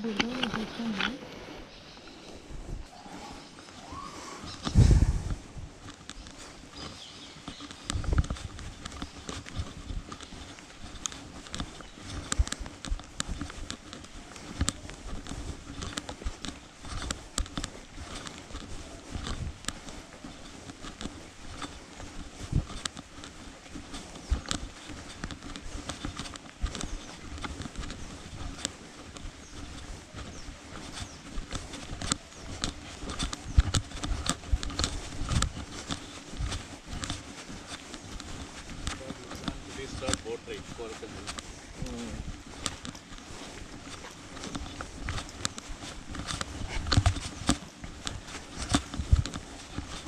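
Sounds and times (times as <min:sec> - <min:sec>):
footsteps on dirt path: 0:00.0 - 0:50.0
low rumbling bumps: 0:04.7 - 0:05.8.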